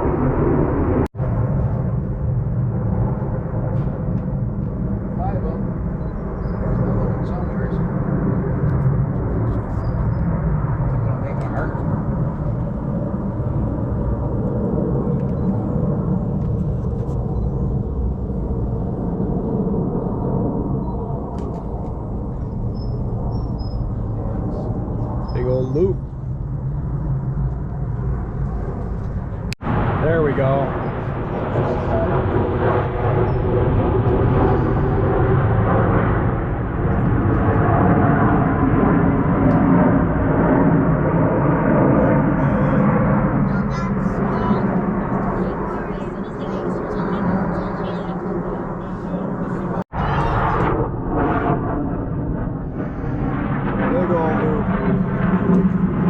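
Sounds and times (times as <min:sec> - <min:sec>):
distant jet engines rumbling: 0:00.0 - 0:56.0.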